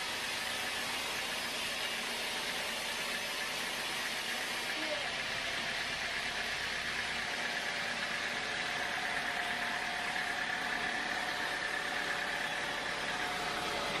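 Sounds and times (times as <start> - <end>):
machine running with whine: 0.0 - 14.0.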